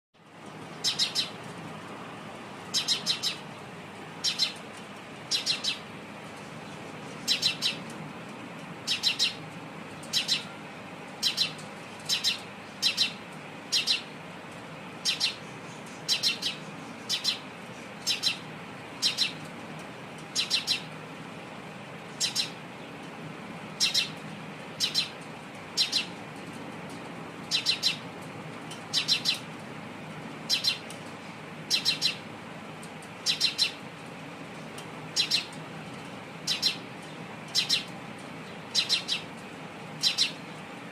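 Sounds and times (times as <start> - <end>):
low background hum: 0.2 - 40.9
sparrow chirping: 0.7 - 1.5, 2.7 - 3.6, 4.2 - 4.6, 5.3 - 5.9, 6.6 - 7.9, 8.8 - 9.4, 10.0 - 10.6, 11.2 - 14.2, 15.0 - 19.5, 20.3 - 20.9, 22.1 - 22.6, 23.8 - 26.2, 27.5 - 28.1, 28.9 - 29.5, 30.5 - 31.0, 31.6 - 32.2, 33.2 - 33.8, 35.1 - 35.6, 36.4 - 39.4, 40.0 - 40.5.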